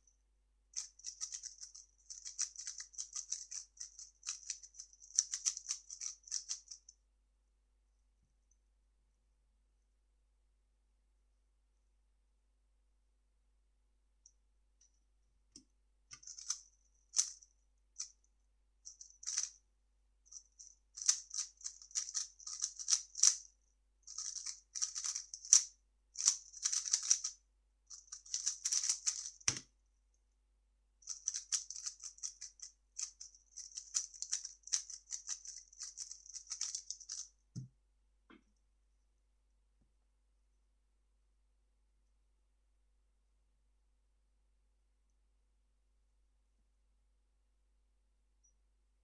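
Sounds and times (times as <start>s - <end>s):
speed cube clicking and rattling: 0.8s - 6.9s, 16.2s - 17.4s, 18.9s - 19.6s, 20.3s - 23.5s, 24.1s - 29.6s, 31.0s - 37.3s.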